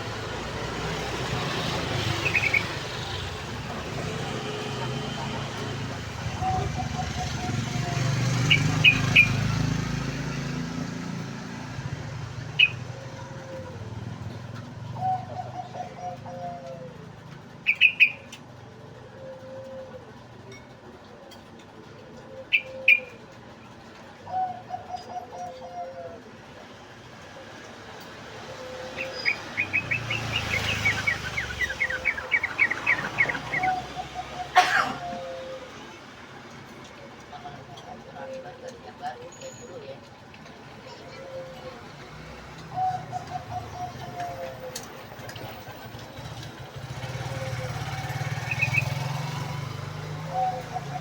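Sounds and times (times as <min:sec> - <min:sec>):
bird chirping: 0:00.8 - 0:04.9, 0:17.6 - 0:18.4, 0:28.6 - 0:34.5, 0:47.0 - 0:51.0.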